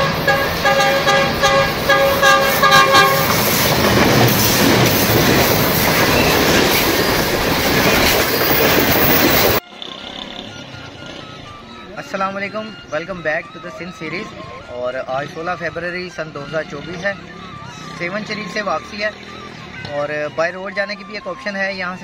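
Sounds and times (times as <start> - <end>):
train horn: 0.0 - 3.7
train clattering over bridge: 0.0 - 9.6.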